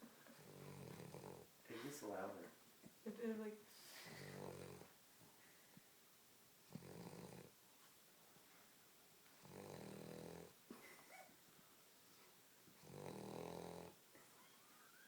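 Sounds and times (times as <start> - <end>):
dog snoring: 0.4 - 1.5, 4.1 - 5.0, 6.7 - 7.6, 9.4 - 10.6, 12.8 - 15.0.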